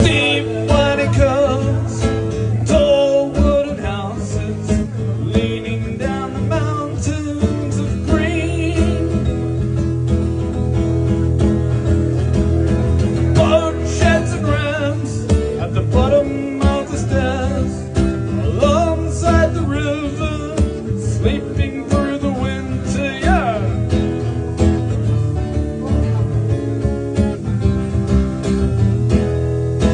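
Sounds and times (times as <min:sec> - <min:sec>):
man singing: 0:00.0 - 0:09.6, 0:13.1 - 0:24.4
guitar chords: 0:00.0 - 0:29.9.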